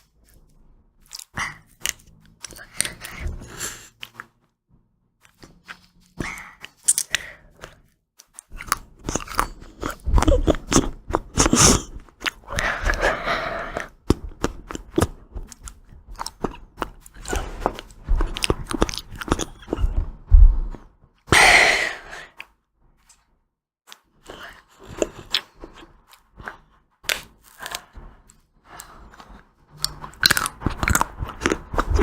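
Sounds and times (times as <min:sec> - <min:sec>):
chewing and crunching ice cream: 0:00.0 - 0:04.4, 0:05.2 - 0:20.8, 0:23.9 - 0:32.0
wet mouth sounds: 0:01.0 - 0:04.3, 0:08.4 - 0:20.0, 0:24.2 - 0:28.0, 0:28.7 - 0:32.0.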